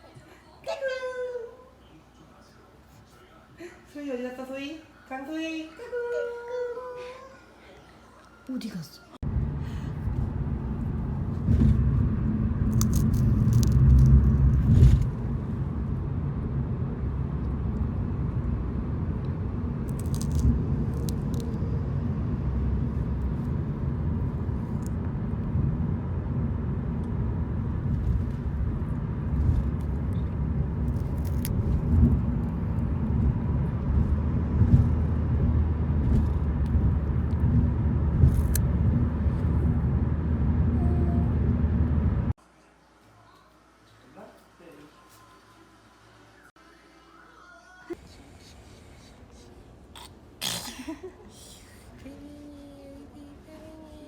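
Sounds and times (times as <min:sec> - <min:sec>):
road rumble inside moving car: 0:09.2 - 0:42.4.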